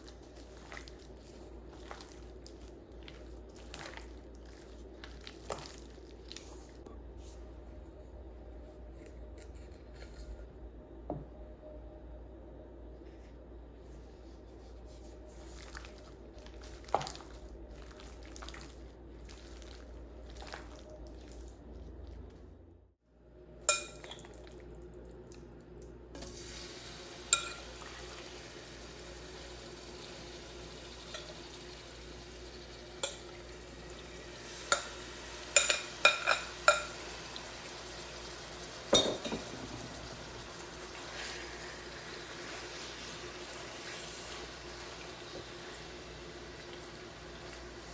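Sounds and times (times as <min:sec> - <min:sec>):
utensil clinking against pot: 0:27.4 - 0:27.7, 0:35.6 - 0:37.0, 0:38.9 - 0:39.5.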